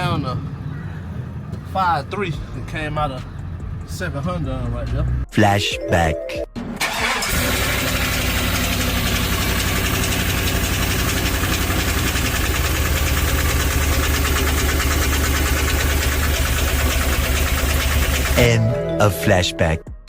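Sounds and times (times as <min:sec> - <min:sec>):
engine idling with knock: 0:00.0 - 0:05.1, 0:07.2 - 0:18.4.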